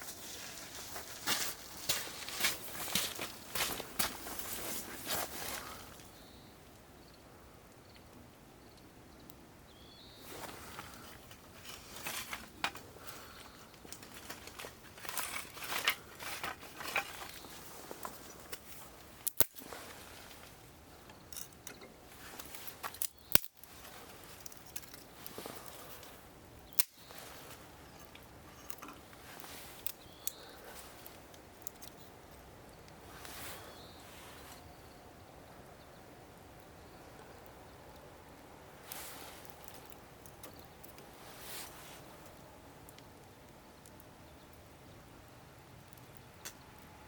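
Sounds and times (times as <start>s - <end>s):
wood fire crackling: 0.0s - 47.0s
sharp pops from burning wood: 10.2s - 33.3s, 38.9s - 46.9s.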